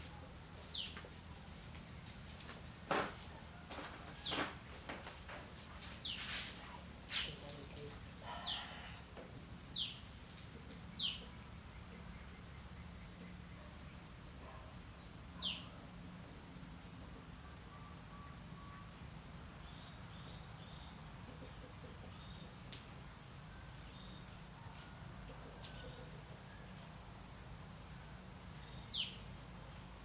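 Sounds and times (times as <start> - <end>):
faint steady hum: 0.0 - 30.0
bird chirping: 28.6 - 29.4.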